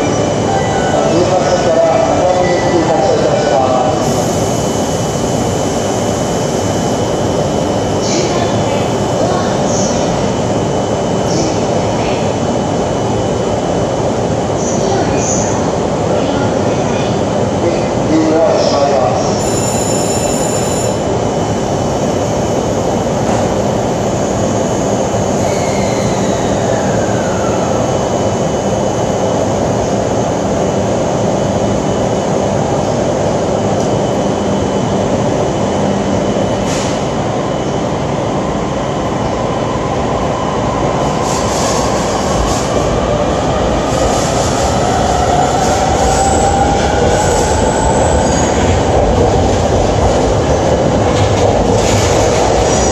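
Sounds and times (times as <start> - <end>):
train wheels rumbling on rail: 22.5 - 52.9.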